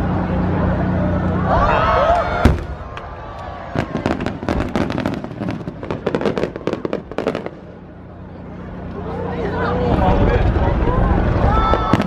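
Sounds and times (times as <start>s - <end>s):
people's voices: 0.0s - 12.0s
firework bang: 2.4s - 3.1s, 3.7s - 7.8s, 11.6s - 12.0s.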